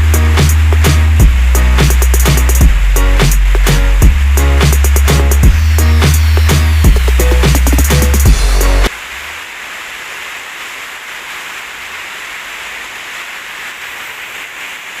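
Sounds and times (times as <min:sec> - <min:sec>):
electronic music with heavy bass: 0:00.0 - 0:09.0
rain hiss: 0:00.0 - 0:15.0.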